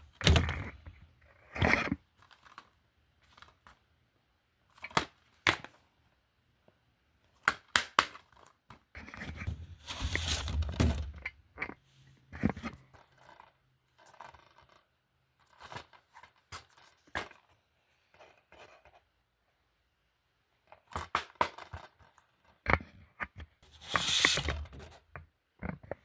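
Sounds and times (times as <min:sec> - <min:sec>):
loud scrape: 0:09.5 - 0:10.9, 0:23.6 - 0:24.9.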